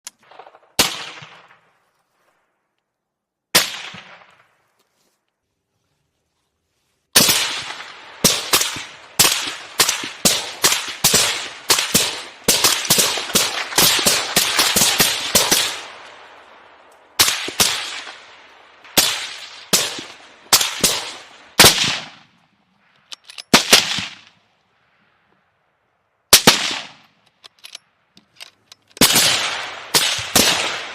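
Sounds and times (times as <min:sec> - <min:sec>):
sharp echoing bangs: 0:07.2 - 0:22.4, 0:23.5 - 0:24.4, 0:26.3 - 0:27.2, 0:29.0 - 0:30.9.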